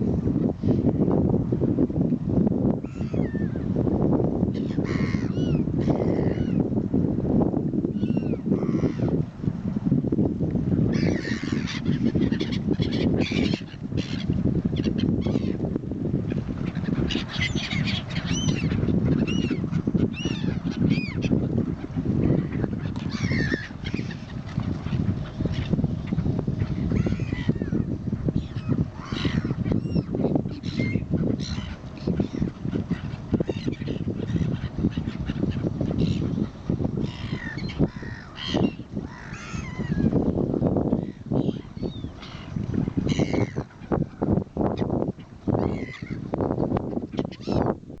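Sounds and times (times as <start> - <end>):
birds calling harshly: 4.6 - 6.6, 10.9 - 15.6, 16.6 - 21.4, 22.2 - 40.1, 41.0 - 44.2, 45.6 - 46.2, 47.1 - 47.7.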